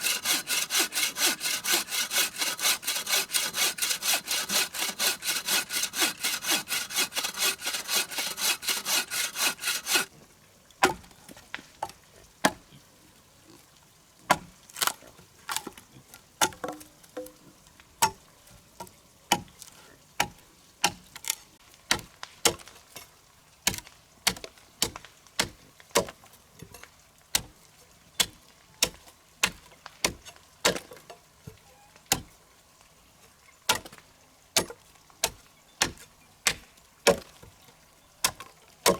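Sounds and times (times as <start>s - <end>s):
hand saw cutting wood: 0.0s - 10.1s.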